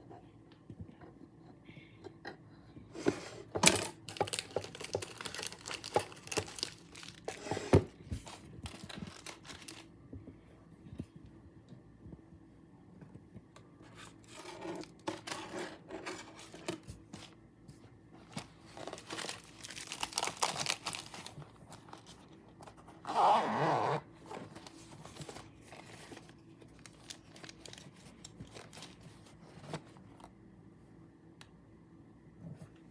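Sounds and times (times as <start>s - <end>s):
packaging crinkling and rustling: 3.6s - 9.9s, 18.2s - 23.1s, 24.2s - 30.1s.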